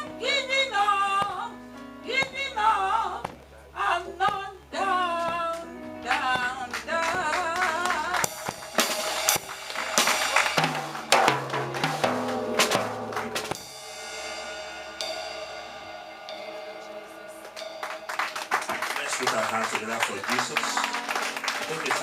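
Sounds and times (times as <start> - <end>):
bass notes: 0.0 - 20.6
live gospel band: 0.0 - 22.0
drum-kit fills with cymbal crashes: 8.2 - 21.0.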